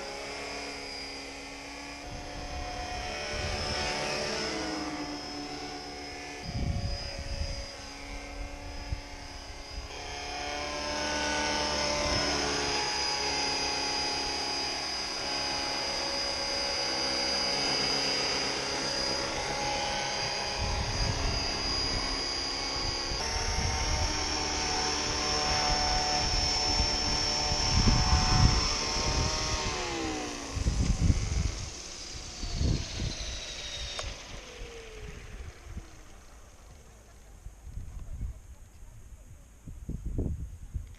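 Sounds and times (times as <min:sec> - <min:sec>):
rotor hum: 0:00.0 - 0:40.4
model helicopter motor whine: 0:00.0 - 0:40.9
wind buffeting microphone: 0:06.4 - 0:09.9, 0:20.1 - 0:33.4, 0:36.9 - 0:40.9.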